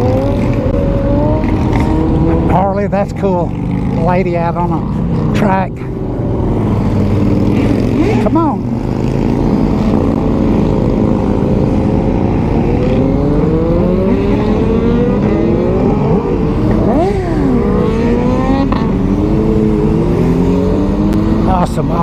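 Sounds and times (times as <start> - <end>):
sportbike engines accelerating: 0.0 - 22.0.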